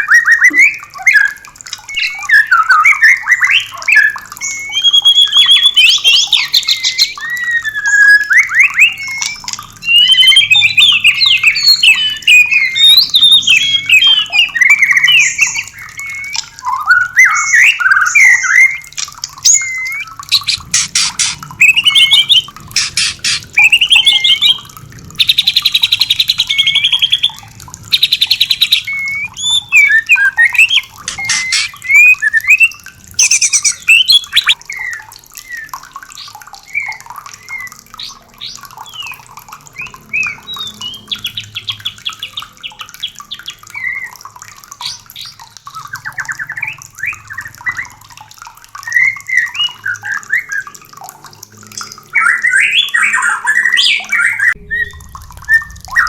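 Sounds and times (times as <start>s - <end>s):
bird singing whistled phrases: 0.0s - 37.8s, 48.8s - 50.6s, 52.2s - 56.0s
bird rattling calls: 18.9s - 24.6s, 30.5s - 32.6s.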